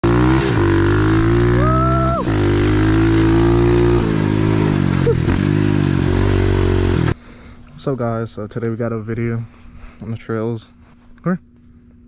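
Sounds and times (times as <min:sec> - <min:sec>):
motorbike engine running: 0:00.0 - 0:07.2.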